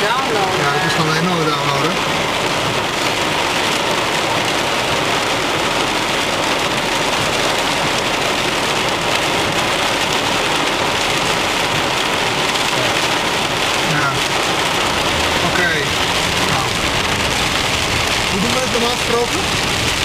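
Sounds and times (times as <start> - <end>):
heavy rain hiss: 0.0 - 20.0.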